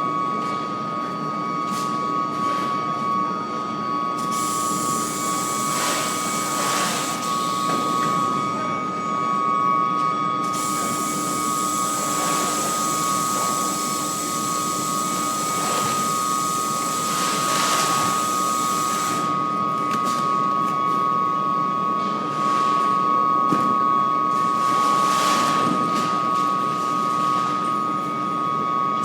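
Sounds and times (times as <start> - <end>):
high-pitched induction coil whine: 4.1 - 19.8.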